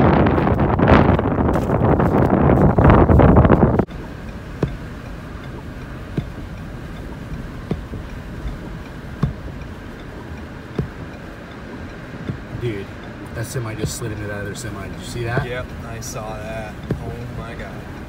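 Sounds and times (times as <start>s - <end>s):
wind buffeting microphone: 0.0s - 18.0s
sharp ticks: 3.8s - 18.0s.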